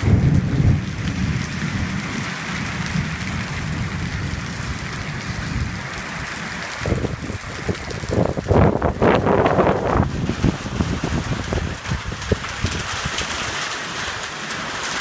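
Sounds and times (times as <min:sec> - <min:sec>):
wind buffeting microphone: 0:00.0 - 0:14.3
heavy rain pouring: 0:00.0 - 0:15.0.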